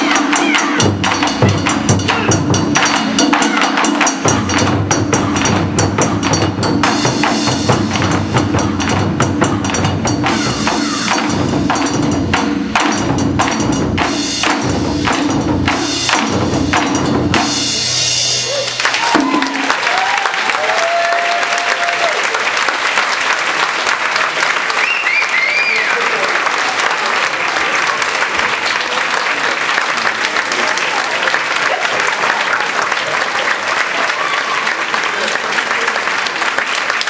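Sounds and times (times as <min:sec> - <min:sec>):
taiko drums ensemble: 0:00.0 - 0:20.8.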